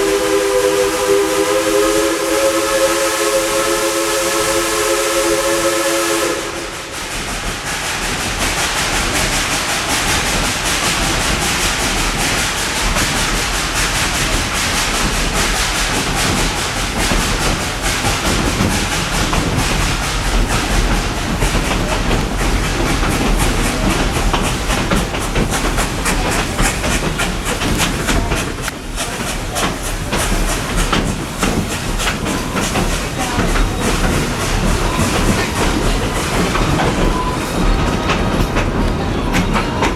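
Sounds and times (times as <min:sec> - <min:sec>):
train cars rattling: 0:00.0 - 0:39.9
train running noise: 0:00.0 - 0:39.9
wheels clacking over rails: 0:06.2 - 0:39.9.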